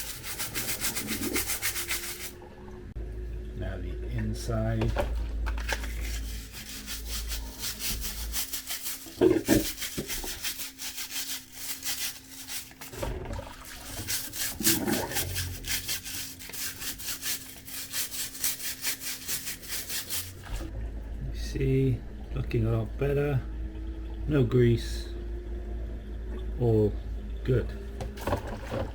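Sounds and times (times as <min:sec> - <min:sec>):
brush scrubbing plastic: 0:00.0 - 0:02.4, 0:04.8 - 0:20.7, 0:28.2 - 0:28.9.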